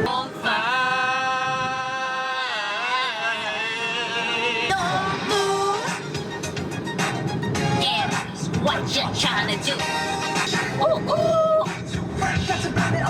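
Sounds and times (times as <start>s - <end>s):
person singing: 0.0s - 6.2s
music: 0.0s - 13.0s.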